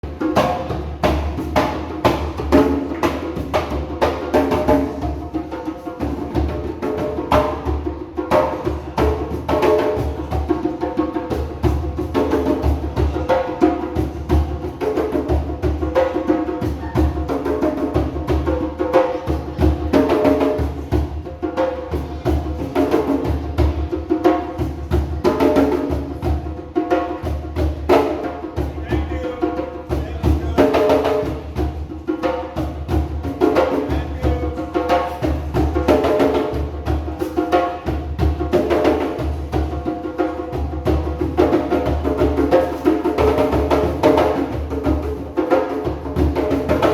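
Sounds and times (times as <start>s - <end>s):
djembe drums playing: 0.0s - 46.9s.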